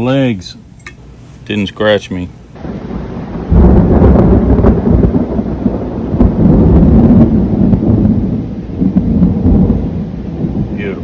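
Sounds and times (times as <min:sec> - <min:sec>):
rolling thunder rumble: 0:02.6 - 0:11.0.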